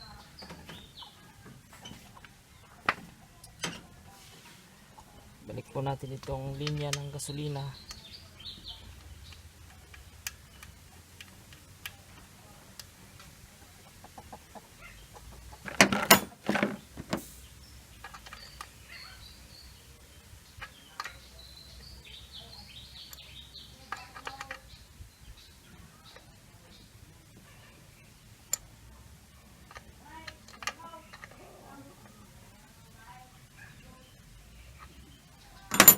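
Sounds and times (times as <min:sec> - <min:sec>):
chickens clucking: 0:00.0 - 0:28.7.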